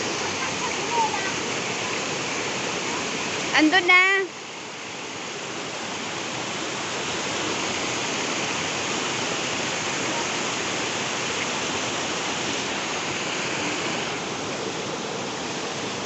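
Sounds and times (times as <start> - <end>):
steady rushing noise: 4.6 - 16.0.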